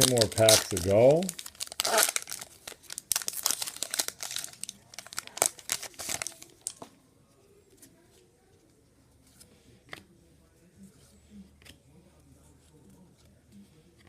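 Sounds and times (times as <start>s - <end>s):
wrapper being torn and crinkled: 0.0s - 6.8s.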